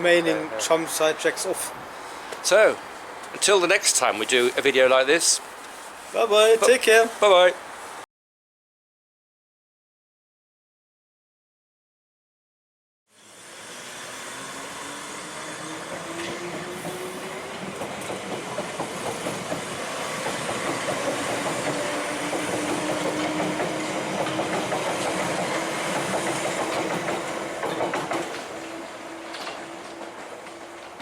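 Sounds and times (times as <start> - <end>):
tram motor whine: 13.1 - 31.0
tram wheels clattering on track: 13.4 - 31.0.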